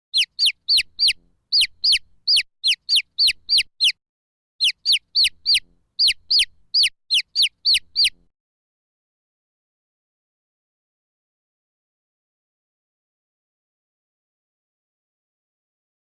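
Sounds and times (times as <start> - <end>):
baby chicks peeping: 0.1 - 4.0, 4.6 - 8.2.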